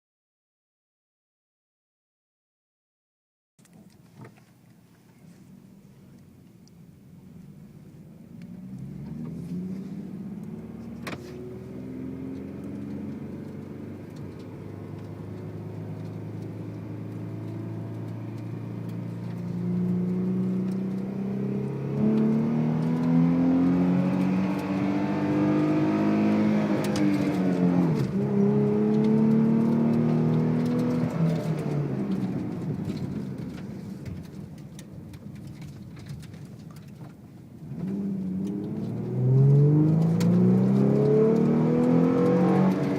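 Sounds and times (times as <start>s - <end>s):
car accelerating: 8.2s - 34.4s, 37.6s - 42.9s.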